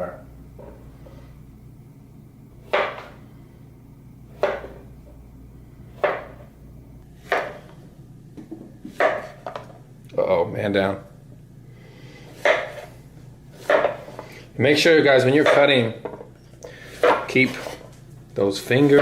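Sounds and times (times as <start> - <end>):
knife chopping on cutting board: 2.6 - 3.2, 4.3 - 4.9, 5.9 - 6.5, 7.2 - 7.7, 8.8 - 9.6, 12.3 - 12.9, 13.6 - 14.2, 16.9 - 17.8.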